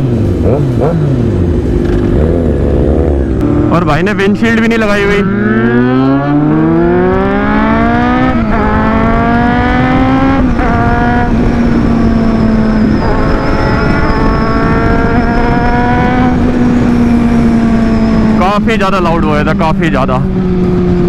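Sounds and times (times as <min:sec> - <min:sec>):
motorcycle accelerating through gears: 0:00.0 - 0:21.0
wind noise: 0:00.0 - 0:21.0.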